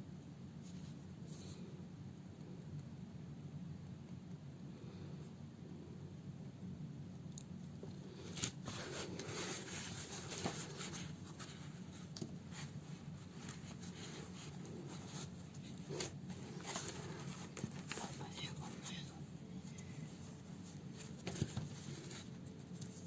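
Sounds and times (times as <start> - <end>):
needle and thread through cloth: 8.2 - 23.0.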